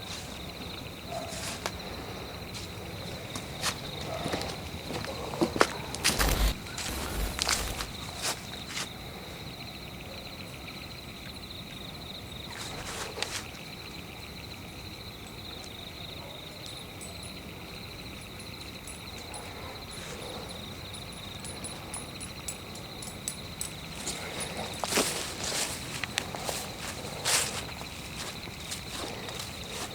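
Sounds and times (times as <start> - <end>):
insects trilling: 1.7 - 15.5, 16.7 - 29.9
footsteps on forest floor: 6.0 - 8.8.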